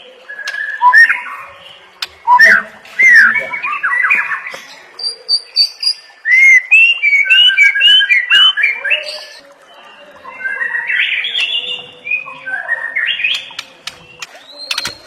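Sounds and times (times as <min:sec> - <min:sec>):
bird singing whistles and clicks: 0:13.2 - 0:15.0.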